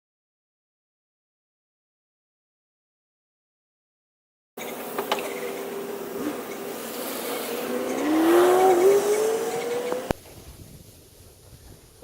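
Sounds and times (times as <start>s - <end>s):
vehicle engine accelerating: 6.2s - 10.2s.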